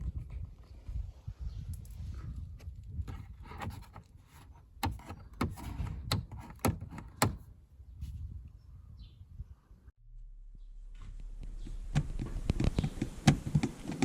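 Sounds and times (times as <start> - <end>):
loose cover rattling: 3.1 - 7.4
low rumble: 9.7 - 14.0.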